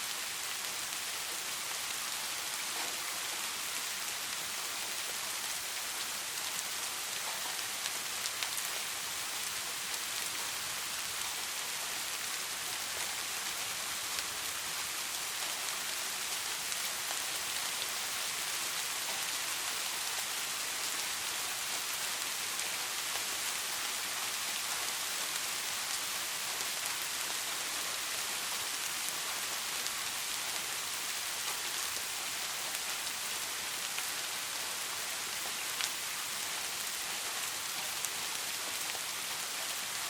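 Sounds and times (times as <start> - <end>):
steady rain hiss: 0.0 - 40.0.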